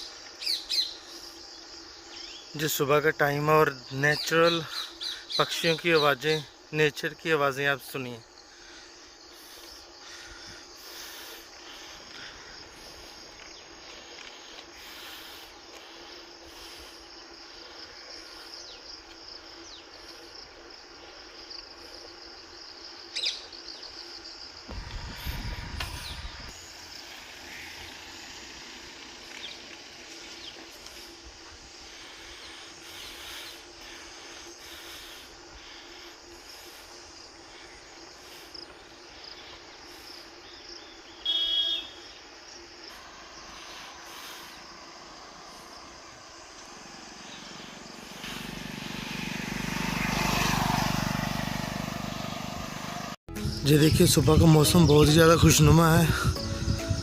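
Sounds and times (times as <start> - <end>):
steady hiss: 0.0 - 49.5
faint outdoor ambience: 0.0 - 57.0
engine passing by: 43.7 - 53.2.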